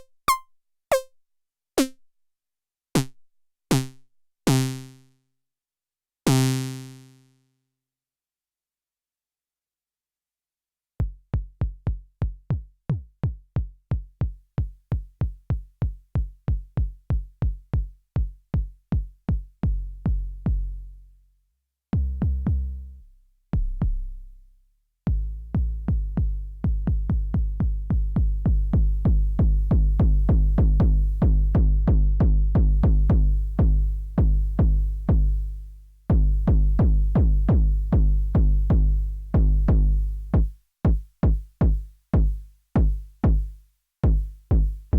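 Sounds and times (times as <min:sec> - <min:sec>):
deep electronic kick drum hits: 0:11.0 - 0:20.6, 0:22.0 - 0:22.7, 0:23.6 - 0:24.2, 0:25.1 - 0:35.4, 0:36.1 - 0:44.8.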